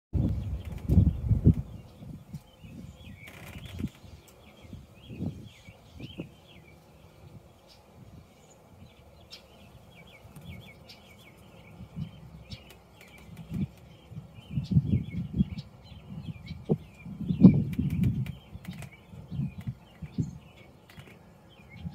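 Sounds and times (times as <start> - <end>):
low rumbling buffets: 0.2 - 21.9
small birds chirping: 0.2 - 21.9.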